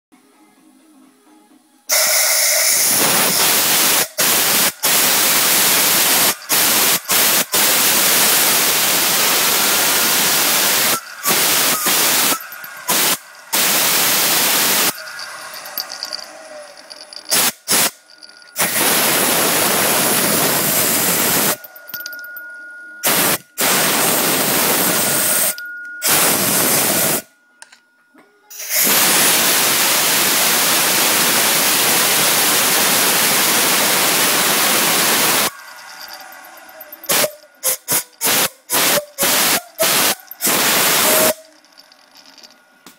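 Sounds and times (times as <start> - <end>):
faint high whistle: 1.9 - 3.4, 10.6 - 12.7
turbocharger hissing rush: 2.1 - 16.2, 17.1 - 21.6.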